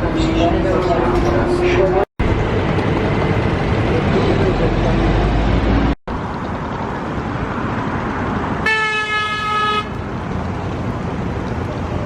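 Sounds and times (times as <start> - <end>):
vehicle running: 0.0 - 12.0
vehicle horn: 8.6 - 10.0.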